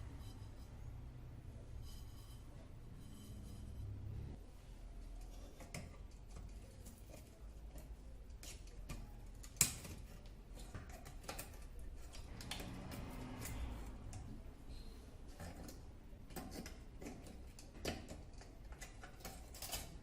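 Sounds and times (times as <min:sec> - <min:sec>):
metal lantern parts clicking: 0:15.3 - 0:20.0.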